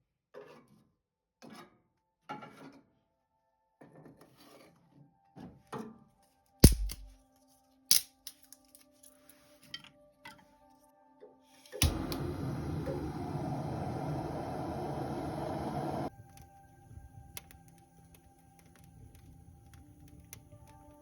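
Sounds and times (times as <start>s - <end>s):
objects scraping and rustling: 3.9s - 5.6s.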